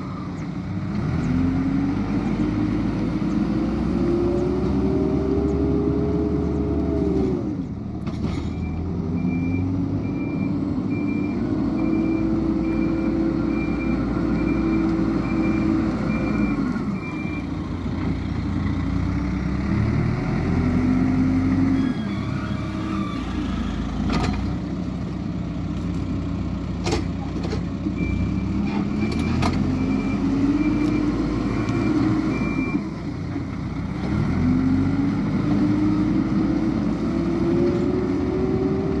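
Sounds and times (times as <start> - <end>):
diesel engine revving: 0.0 - 39.0
reversing alarm beeping: 8.5 - 17.5, 28.0 - 32.9.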